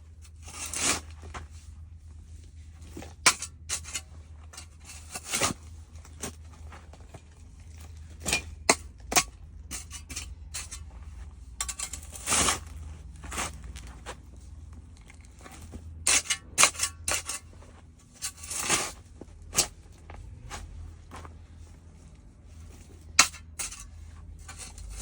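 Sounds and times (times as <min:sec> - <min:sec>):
soil crunching and crackling: 0:00.1 - 0:25.0
scraping crunches: 0:11.6 - 0:14.3, 0:15.0 - 0:21.5.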